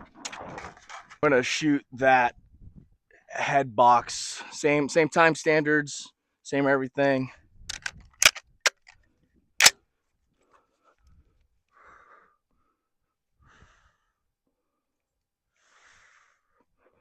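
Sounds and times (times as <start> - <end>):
sharp rifle handling click: 7.7 - 8.9
soft breaths: 10.4 - 14.9, 15.5 - 17.0.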